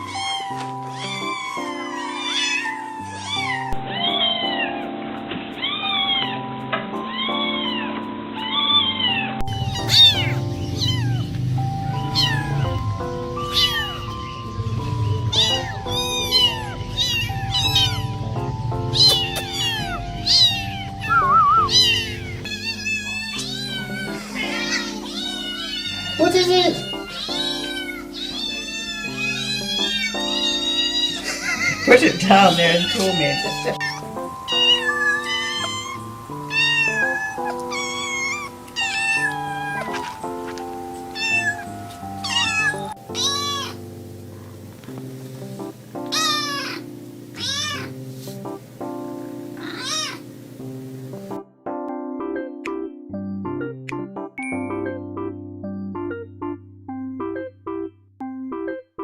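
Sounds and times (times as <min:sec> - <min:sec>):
kittens meowing: 0:00.0 - 0:04.9, 0:05.6 - 0:43.9, 0:46.1 - 0:48.0, 0:49.6 - 0:50.3
background music: 0:00.0 - 0:59.0.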